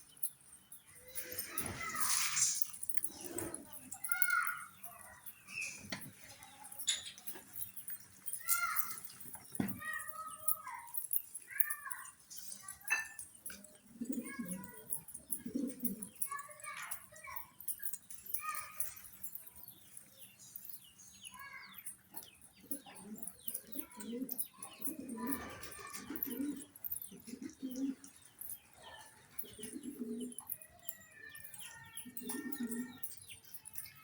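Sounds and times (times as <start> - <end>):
pigeons cooing: 2.8 - 3.8, 13.4 - 16.3, 22.6 - 30.6, 31.4 - 33.2.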